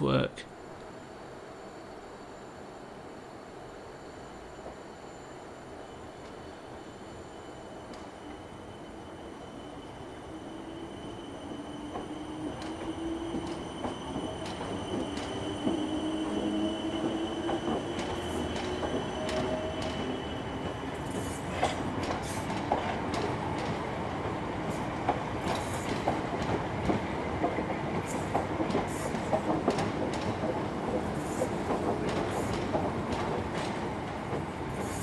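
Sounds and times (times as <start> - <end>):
electric train running: 4.2 - 35.0
rail clicks: 7.5 - 35.0.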